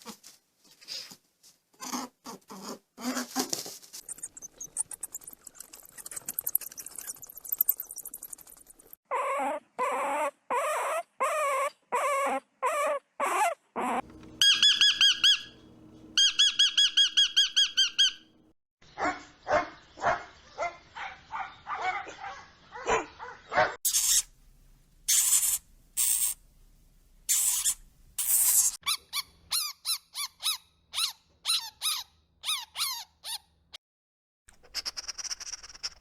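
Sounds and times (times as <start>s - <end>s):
high trilling animal call: 9.1s - 15.6s, 23.9s - 24.3s, 34.7s - 36.0s
very high squeaks: 9.2s - 15.6s, 23.8s - 24.3s, 25.1s - 26.4s, 27.3s - 33.4s, 34.6s - 36.0s
dog barking: 19.0s - 23.8s
quick short animal calls: 34.6s - 36.0s.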